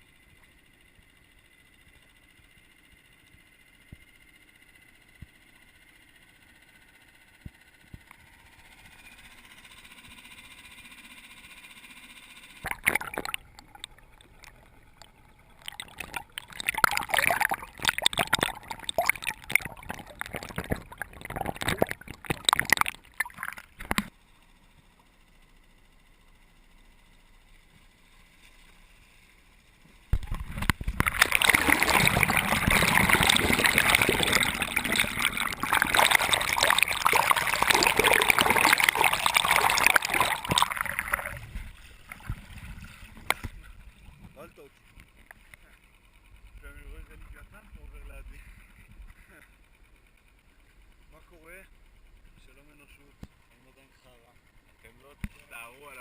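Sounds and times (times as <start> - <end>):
faint steady hum: 0.0 - 56.0
water splashing and gurgling: 12.6 - 24.1, 30.2 - 44.4.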